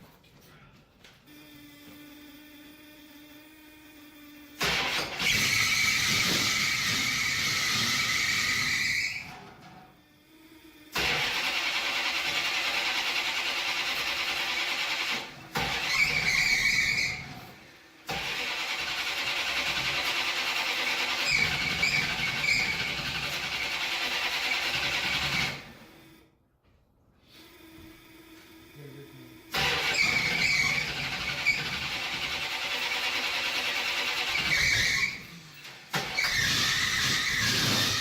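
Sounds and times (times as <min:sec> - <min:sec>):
engine cranking on starter: 0:04.6 - 0:09.8, 0:10.9 - 0:26.0, 0:29.5 - 0:38.0
high squeals: 0:04.8 - 0:09.4, 0:15.7 - 0:17.3, 0:21.0 - 0:23.3, 0:33.9 - 0:35.4, 0:36.0 - 0:38.0.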